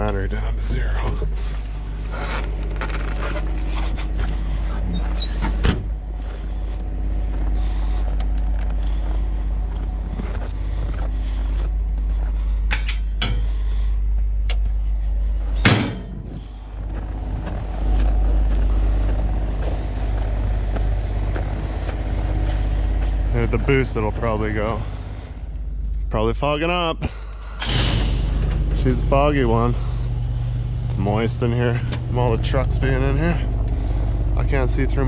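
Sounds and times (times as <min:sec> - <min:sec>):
engine idling: 0:00.0 - 0:35.0
loud clunk: 0:15.6 - 0:16.4, 0:27.4 - 0:28.9.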